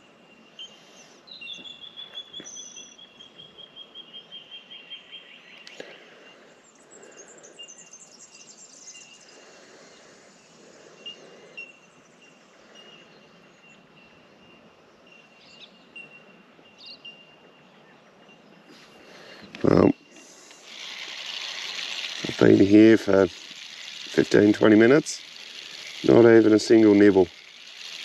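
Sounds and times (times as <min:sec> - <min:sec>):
birds trilling: 0:00.0 - 0:28.0
bell-like bird calls: 0:10.9 - 0:20.2.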